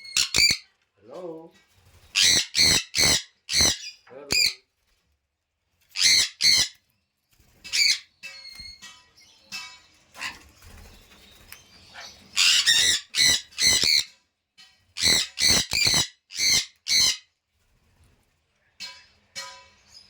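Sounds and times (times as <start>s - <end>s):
parrot calling: 0.0s - 0.6s, 2.1s - 4.6s, 6.0s - 6.8s, 11.9s - 14.1s, 15.0s - 17.2s.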